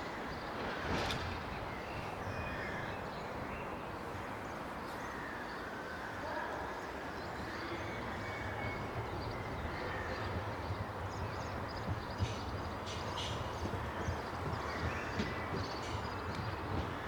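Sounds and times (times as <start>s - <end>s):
train rumbling: 0.0s - 3.5s, 8.1s - 17.0s.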